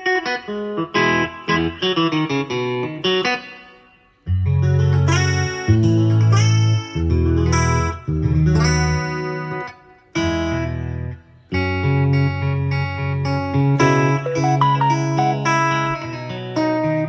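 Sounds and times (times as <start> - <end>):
keyboard playing guitar chords: 14.2 - 16.5.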